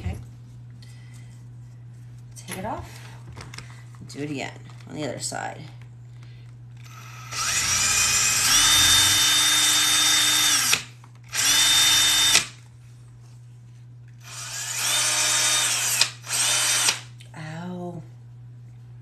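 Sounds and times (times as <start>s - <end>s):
electric drill boring through leather: 6.8s - 12.6s, 14.2s - 17.0s.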